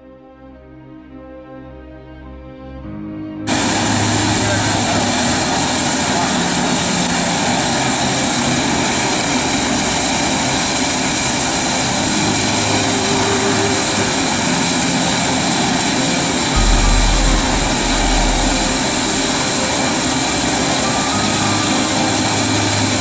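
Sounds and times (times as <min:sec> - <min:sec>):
blower fan droning: 0:03.5 - 0:23.0
high whine: 0:16.4 - 0:20.9
deep low rumble: 0:16.5 - 0:19.8.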